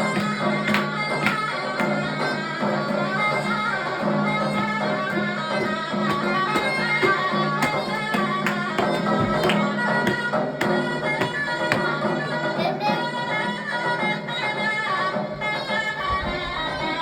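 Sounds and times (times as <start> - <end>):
drum strokes: 0.0 - 12.2.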